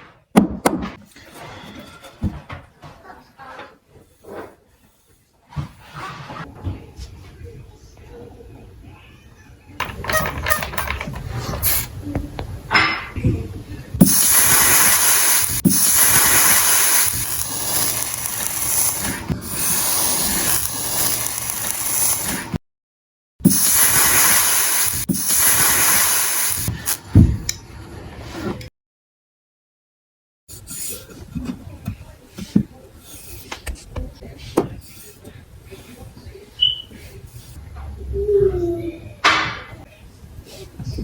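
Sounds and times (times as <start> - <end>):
pressurised spray hissing: 14.0 - 22.6, 23.5 - 27.1.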